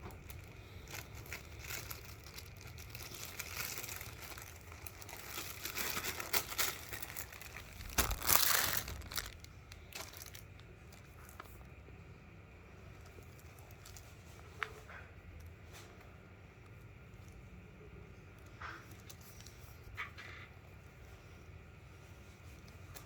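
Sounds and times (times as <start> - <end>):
packaging crinkling: 0.0 - 11.7.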